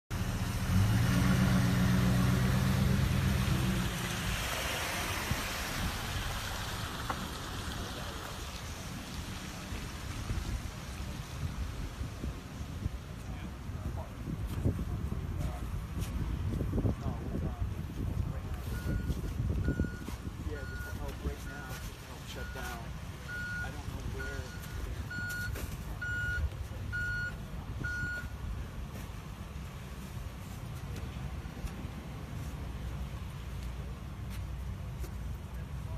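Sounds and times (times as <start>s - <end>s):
low engine rumble: 0.1s - 35.9s
vehicle tyre and road noise: 0.1s - 35.9s
reversing alarm beeping: 22.4s - 28.3s.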